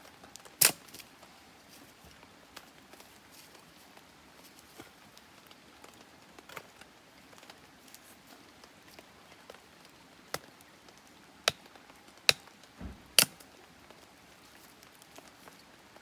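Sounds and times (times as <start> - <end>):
campfire wood cracking: 0.3 - 1.2, 9.5 - 15.6
dull low knock: 12.8 - 13.4.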